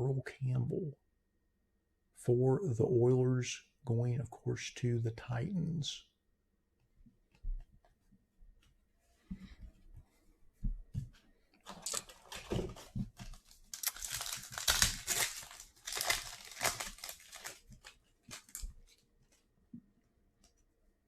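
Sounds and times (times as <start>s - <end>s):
plastic wrapper tearing and crinkling: 13.3s - 18.8s.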